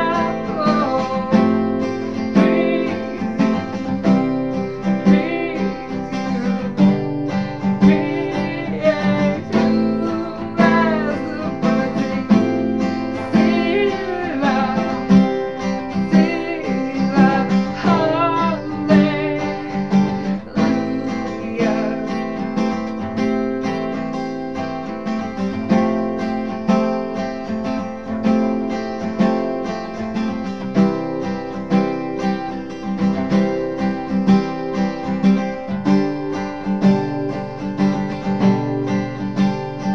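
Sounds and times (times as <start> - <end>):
person singing worship song: 0.0 - 4.1, 4.8 - 22.8
acoustic guitar strumming: 0.0 - 39.9.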